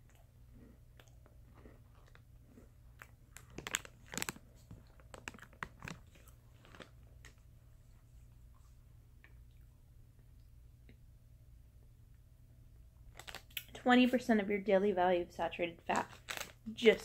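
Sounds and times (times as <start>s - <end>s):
cookies crunching when chewed: 0.0s - 7.6s, 13.0s - 13.8s, 15.9s - 17.0s.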